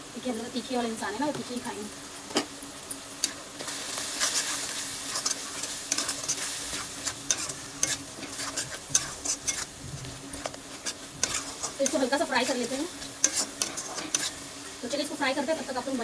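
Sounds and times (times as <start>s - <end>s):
onions sizzling in hot oil: 0.0s - 16.0s
metal spatula scraping a pan: 4.1s - 9.7s, 10.4s - 14.6s.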